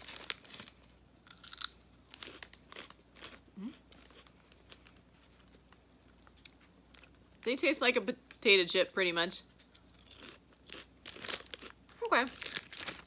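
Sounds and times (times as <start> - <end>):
crunchy snack chewing: 0.0 - 5.6, 9.7 - 13.0.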